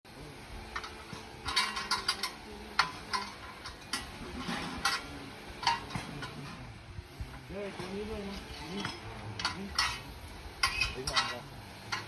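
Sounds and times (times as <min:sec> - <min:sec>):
metal clinking against metal: 0:00.7 - 0:06.5, 0:08.6 - 0:12.0.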